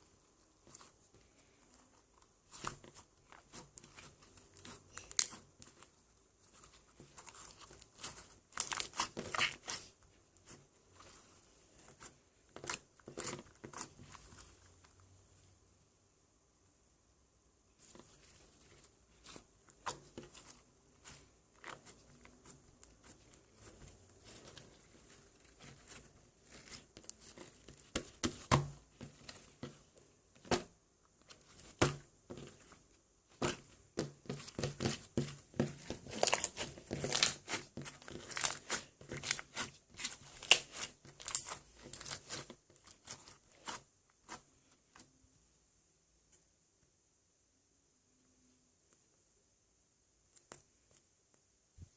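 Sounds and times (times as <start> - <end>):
crinkling and tearing: 0.6 - 10.5, 33.4 - 44.4.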